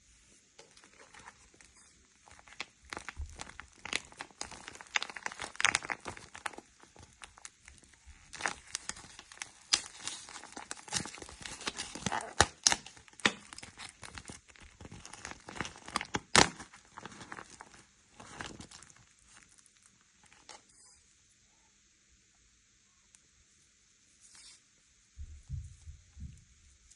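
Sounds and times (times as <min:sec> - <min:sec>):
squishy toy sticky crackles: 0:00.6 - 0:21.0.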